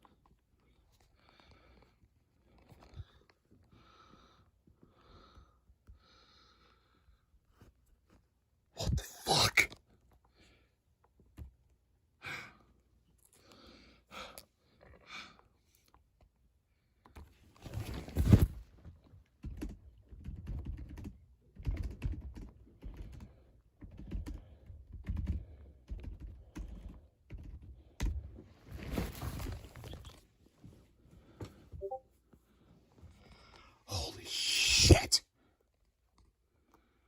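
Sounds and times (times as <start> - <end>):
keyboard typing: 19.4 - 28.2.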